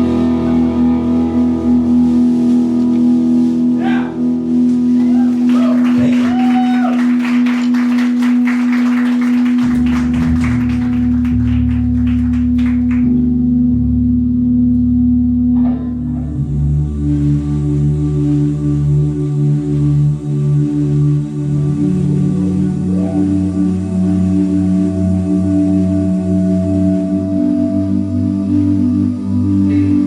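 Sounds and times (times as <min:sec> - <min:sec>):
electric guitar chord ringing: 0:00.0 - 0:05.1.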